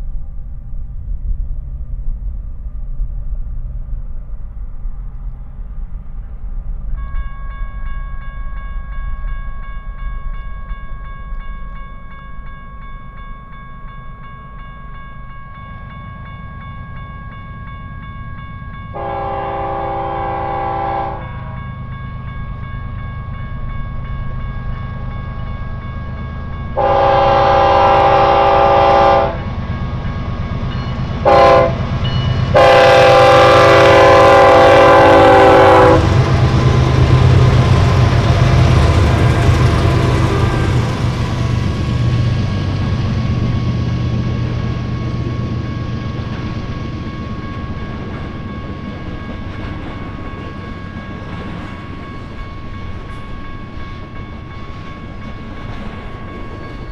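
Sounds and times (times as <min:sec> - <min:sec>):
diesel locomotives rumbling: 0:00.0 - 0:56.9
train horn blasts: 0:18.9 - 0:21.6, 0:26.7 - 0:29.6, 0:31.2 - 0:41.4.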